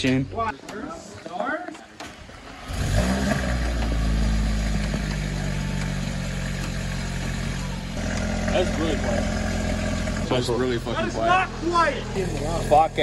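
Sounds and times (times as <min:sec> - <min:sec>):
car engine starting and idling: 0:02.0 - 0:13.0.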